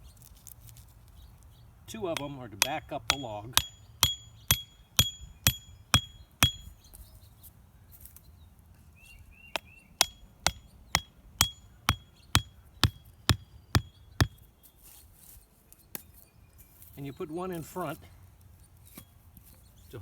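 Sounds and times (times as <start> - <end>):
hammer driving pegs: 1.9 - 6.7, 10.0 - 14.4.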